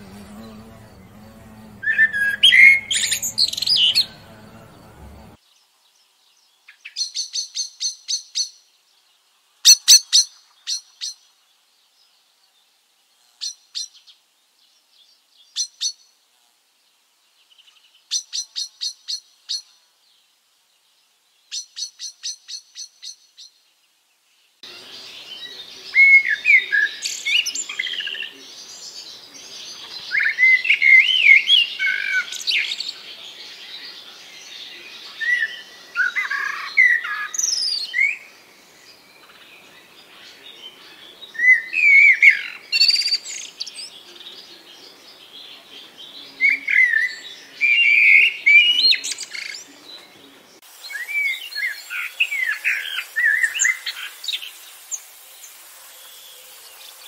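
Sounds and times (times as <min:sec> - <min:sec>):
background hiss: 0:00.0 - 0:57.0
bird singing chirps and whistles: 0:01.8 - 0:04.2, 0:41.3 - 0:43.9, 0:46.4 - 0:49.6, 0:50.8 - 0:55.0.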